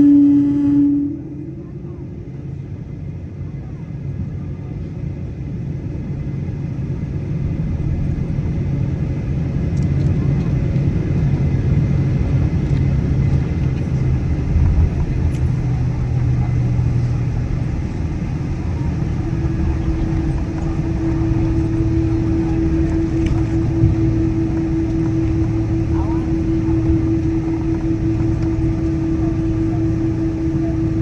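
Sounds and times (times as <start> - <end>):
higher steady tone: 0.0 - 3.5, 14.0 - 31.0
jet engines idling rumble: 0.0 - 31.0
low hum: 0.0 - 31.0.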